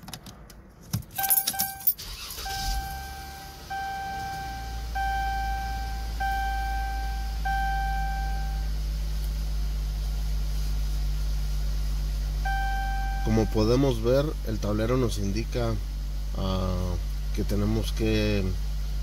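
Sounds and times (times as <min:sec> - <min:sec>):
keys jangling in ignition: 0:00.0 - 0:03.0
car engine starting and idling: 0:00.0 - 0:19.0
dashboard warning chime: 0:01.2 - 0:08.7, 0:12.4 - 0:14.0.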